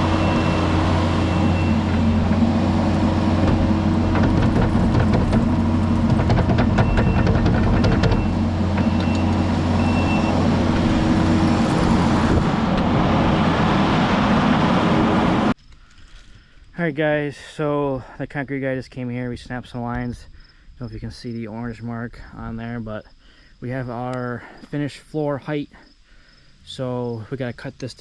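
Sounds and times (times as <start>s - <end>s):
backup alarm beeping: 0.0s - 2.2s, 6.8s - 11.6s
metallic clanking: 0.0s - 13.0s
diesel engine running: 0.0s - 15.6s.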